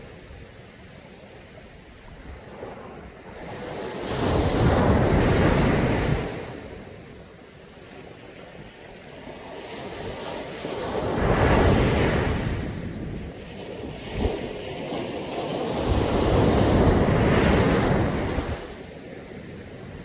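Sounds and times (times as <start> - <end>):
sea waves breaking on beach: 0.0 - 20.0.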